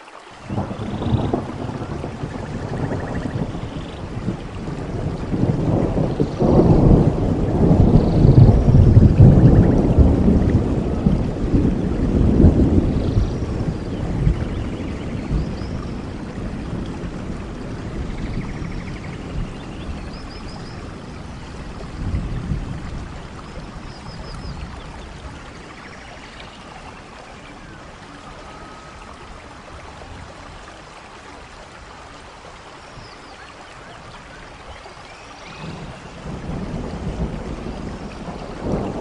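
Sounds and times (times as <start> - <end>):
rain falling in a forest: 0.0 - 39.0
low thunder rumbles: 0.4 - 32.3, 33.8 - 39.0.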